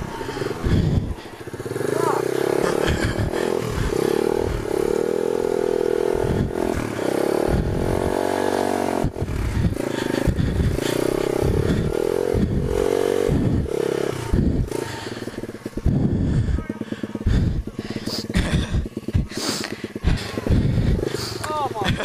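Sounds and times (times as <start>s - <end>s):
pit bike engine revving: 0.0s - 22.0s
low thumps: 2.7s - 6.8s, 7.4s - 16.6s, 17.2s - 21.1s.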